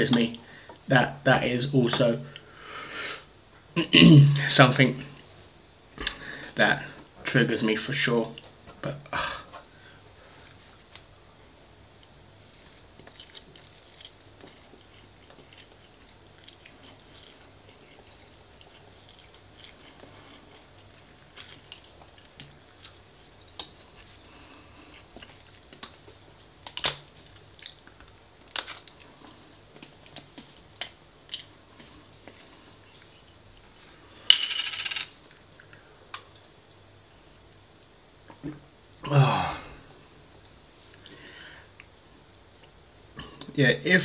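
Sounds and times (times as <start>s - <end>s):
faint steady hum: 0.0s - 44.0s
chewing and mouth smacks: 12.6s - 23.8s, 26.7s - 32.0s.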